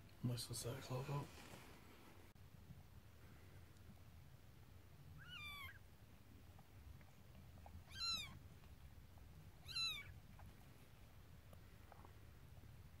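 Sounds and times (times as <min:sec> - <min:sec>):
kitten mewing: 0:05.2 - 0:05.8, 0:07.8 - 0:08.4, 0:09.6 - 0:10.2.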